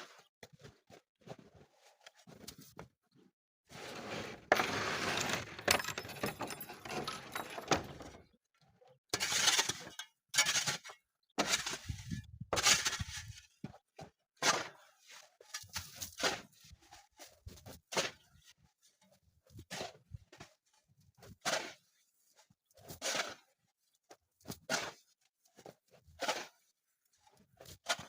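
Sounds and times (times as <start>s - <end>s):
shovel scraping icy snow: 3.7s - 5.5s, 21.4s - 22.0s, 22.8s - 23.5s, 24.6s - 25.1s, 26.1s - 26.6s.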